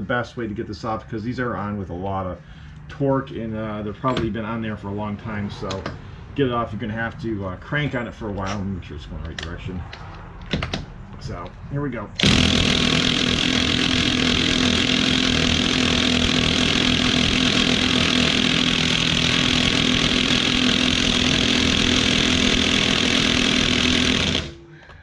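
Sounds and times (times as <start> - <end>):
impact wrench hammering: 12.2 - 25.0.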